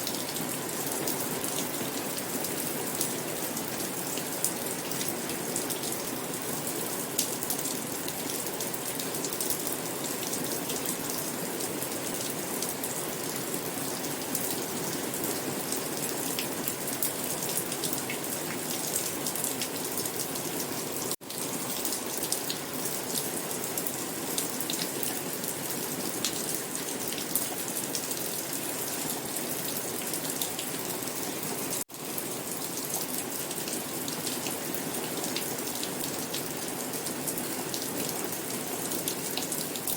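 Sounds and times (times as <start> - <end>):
raindrops ticking on a surface: 0.0 - 31.1
steady rain falling: 0.0 - 39.9.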